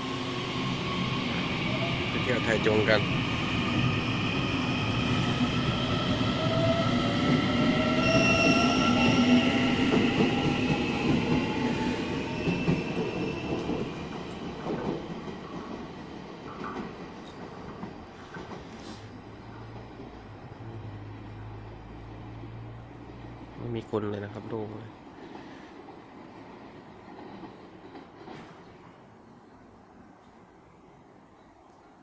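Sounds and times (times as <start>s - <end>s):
train wheels squealing: 0.0s - 14.1s
passenger train rumbling past: 0.0s - 31.3s.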